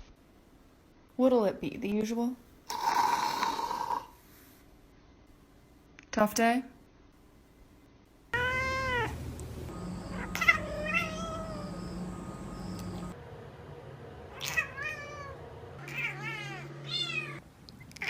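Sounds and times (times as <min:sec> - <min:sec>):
cat meowing: 0:08.4 - 0:09.2, 0:10.1 - 0:12.0, 0:14.3 - 0:17.4.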